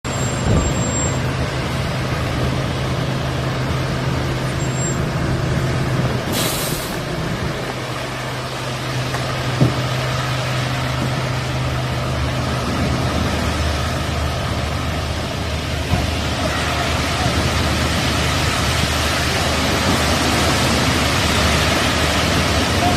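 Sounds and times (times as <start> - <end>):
large vehicle engine running: 0.0 - 22.9
noisy rush: 0.0 - 22.9
short sharp hiss: 6.3 - 7.1.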